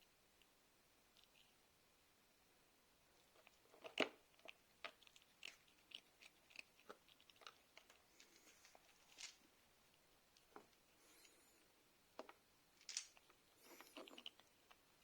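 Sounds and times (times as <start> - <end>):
cat crunching food: 3.1 - 15.0.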